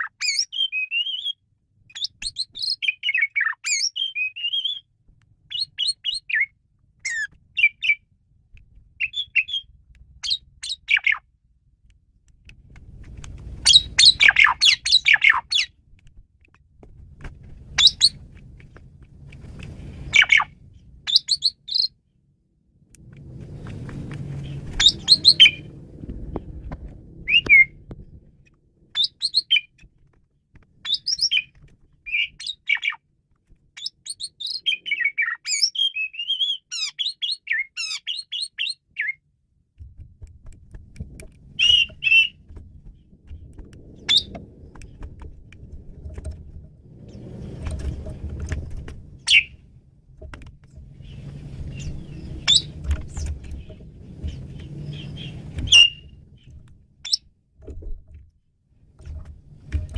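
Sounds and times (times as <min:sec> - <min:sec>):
starling singing: 0:02.0 - 0:04.8, 0:05.5 - 0:08.0, 0:09.0 - 0:11.2, 0:13.6 - 0:15.8, 0:17.7 - 0:18.2, 0:20.1 - 0:22.0, 0:24.4 - 0:25.7, 0:27.2 - 0:27.8, 0:29.0 - 0:29.7, 0:30.8 - 0:31.5, 0:32.1 - 0:33.0, 0:33.8 - 0:39.2, 0:41.5 - 0:42.4, 0:44.0 - 0:44.3, 0:49.2 - 0:49.6, 0:51.0 - 0:56.2
low rumbling noise: 0:15.8 - 0:21.1, 0:22.3 - 0:29.0, 0:39.9 - 0:59.9.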